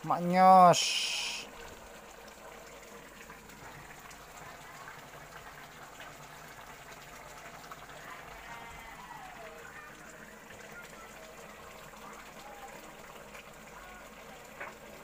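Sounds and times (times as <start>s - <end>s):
faint watery hiss: 0.0s - 5.7s.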